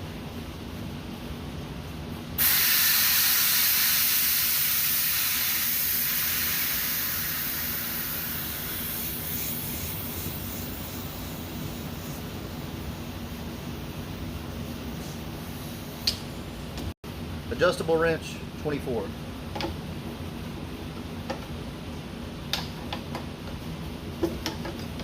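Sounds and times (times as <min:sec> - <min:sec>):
refrigerant hissing from line: 0:02.4 - 0:12.9.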